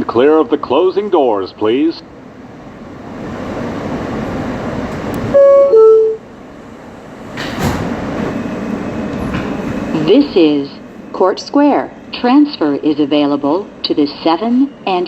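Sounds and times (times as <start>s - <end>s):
subway car interior rumble: 0.0s - 15.0s
two-tone door chime: 5.3s - 6.2s.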